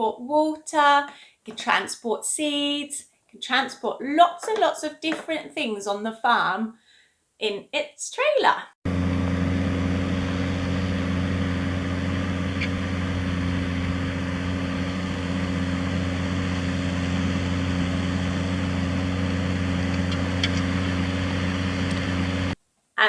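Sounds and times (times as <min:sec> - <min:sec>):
tractor engine droning: 0:08.9 - 0:22.6.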